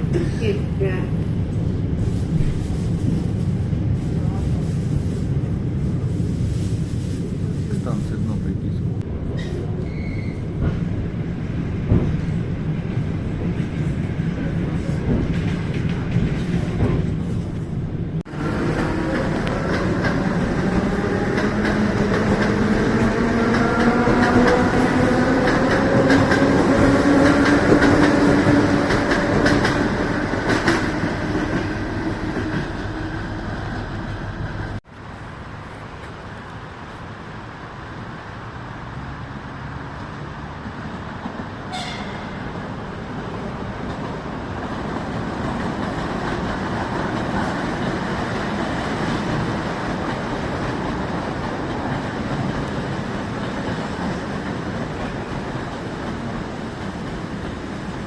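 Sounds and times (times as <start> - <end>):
rising train whine: 0.0 - 58.0
train rumble: 0.0 - 58.0
train running on rails: 0.0 - 58.0
high squeak: 9.4 - 10.4.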